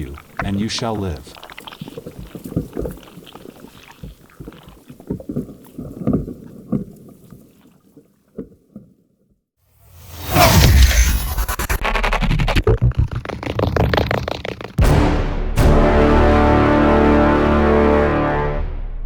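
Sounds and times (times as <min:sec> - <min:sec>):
rising whoosh: 0:09.9 - 0:13.5.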